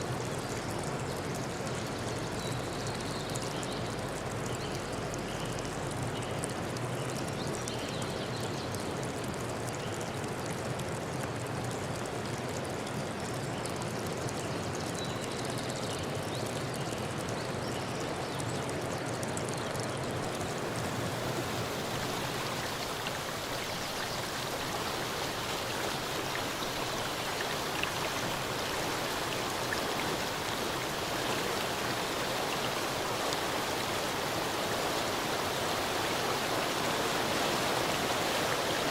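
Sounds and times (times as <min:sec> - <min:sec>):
stream water rushing: 0:20.1 - 0:38.9.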